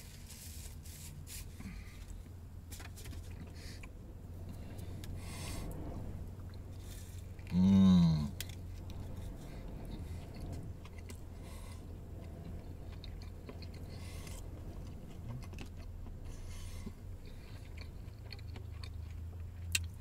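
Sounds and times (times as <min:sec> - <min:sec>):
steady low hum: 0:00.0 - 0:20.0
man chewing food: 0:08.3 - 0:20.0.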